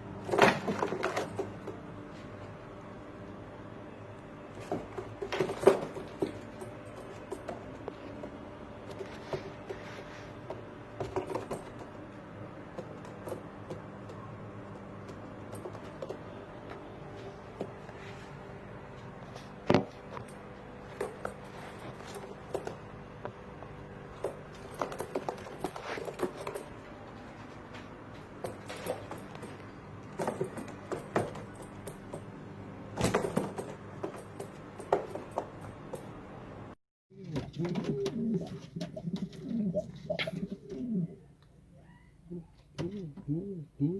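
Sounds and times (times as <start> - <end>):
pigeons shuffling and pecking: 4.5 - 32.3, 37.2 - 41.1.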